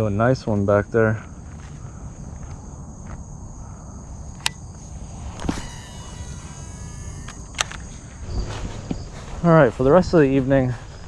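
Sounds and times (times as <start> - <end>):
insects chirring: 0.0 - 11.0
sharp click: 4.4 - 4.6, 5.4 - 8.0
fishing reel whining: 4.4 - 8.2.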